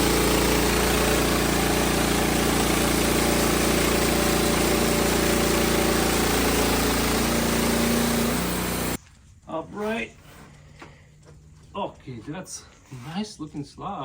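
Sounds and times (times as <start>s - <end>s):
bandsaw sawmill milling a log: 0.0s - 9.0s.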